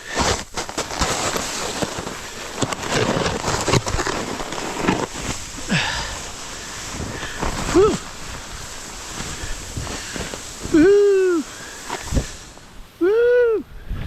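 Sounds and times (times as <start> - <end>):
snowboard scraping snow: 0.0 - 14.0
person grunting: 5.7 - 6.1, 7.7 - 8.0.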